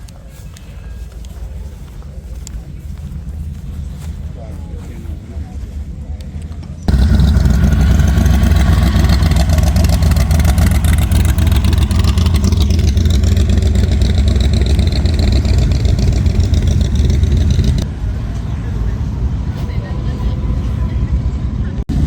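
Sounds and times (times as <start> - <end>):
car engine revving: 6.9 - 17.9.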